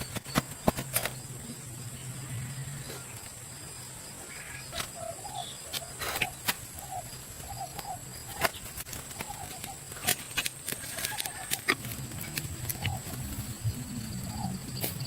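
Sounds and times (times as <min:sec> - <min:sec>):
high-pitched insect drone: 0:10.7 - 0:15.0.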